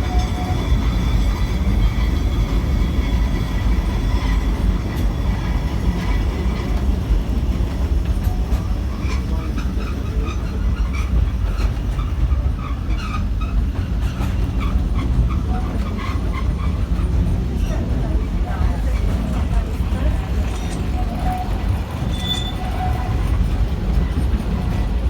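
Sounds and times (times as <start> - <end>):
tram rumbling on track: 0.0 - 25.0.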